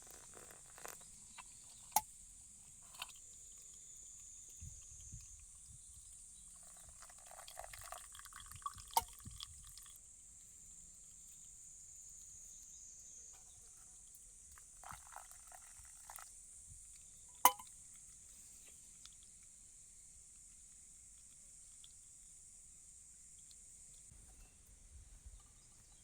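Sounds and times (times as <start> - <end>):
small clinking and rattling: 0.0 - 2.1, 2.8 - 10.0.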